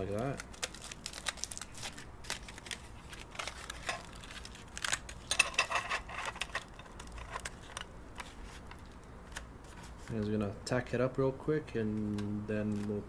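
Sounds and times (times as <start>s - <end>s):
aluminum foil crinkling: 0.0s - 10.2s.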